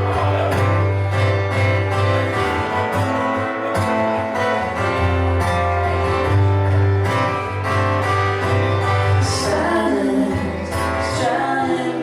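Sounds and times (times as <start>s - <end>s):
bass line: 0.0s - 11.5s
guitar: 0.0s - 12.0s
person singing: 9.2s - 12.0s.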